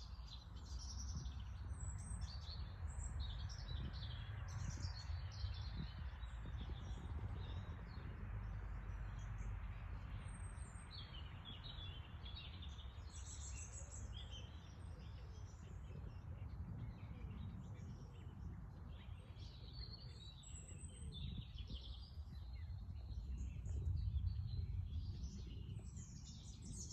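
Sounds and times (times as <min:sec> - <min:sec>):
small birds chirping and singing: 0:00.0 - 0:26.9
steady low rumble: 0:20.0 - 0:26.9.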